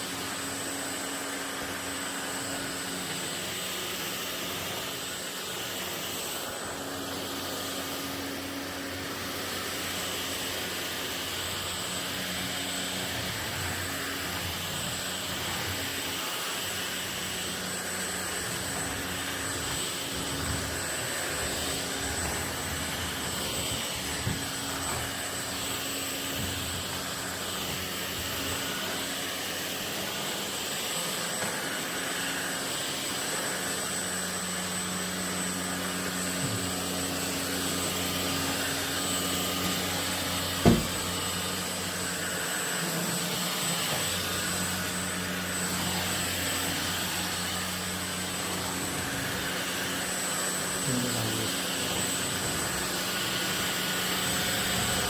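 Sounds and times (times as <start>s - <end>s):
stick vacuum running: 0.0s - 55.0s
sharp knock: 40.6s - 41.1s.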